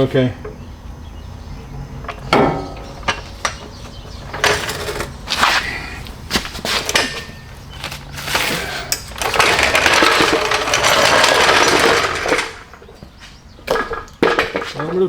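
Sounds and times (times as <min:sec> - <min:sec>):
power tool running: 0:04.2 - 0:13.0.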